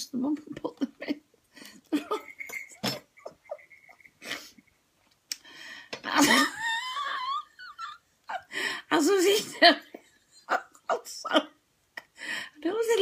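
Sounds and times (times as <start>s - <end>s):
woman laughing breathlessly: 1.6s - 4.8s, 5.5s - 8.9s.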